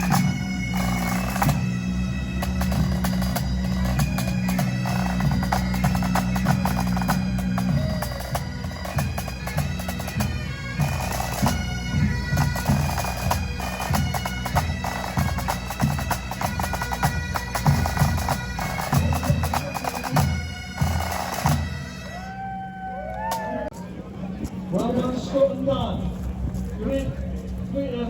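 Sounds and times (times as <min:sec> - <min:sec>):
drums beating: 0:00.0 - 0:22.4
bagpipes with drones: 0:00.0 - 0:23.9.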